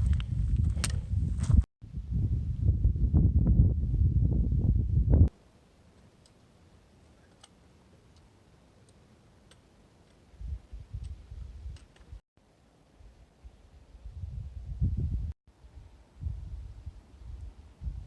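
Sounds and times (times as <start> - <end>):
wind buffeting microphone: 0.0 - 5.3, 10.4 - 12.2, 13.9 - 18.0.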